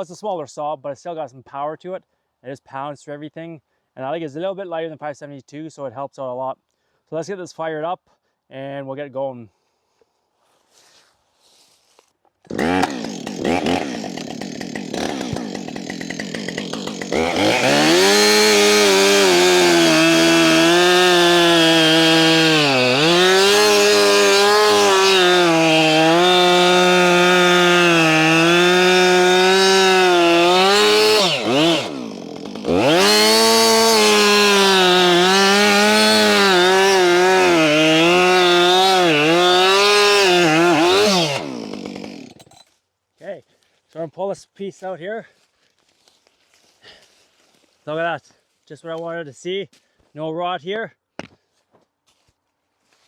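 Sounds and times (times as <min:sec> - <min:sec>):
chainsaw cutting log: 0:12.4 - 0:42.7.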